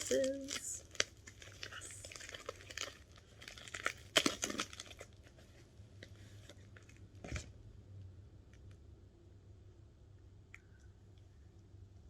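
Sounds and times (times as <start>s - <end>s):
packing wrap crinkling and tearing: 0.0s - 7.1s.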